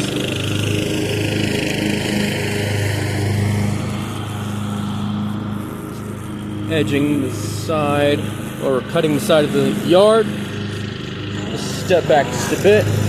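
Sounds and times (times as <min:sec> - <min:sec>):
riding mower engine: 0:00.0 - 0:13.0
string trimmer cutting: 0:00.0 - 0:13.0.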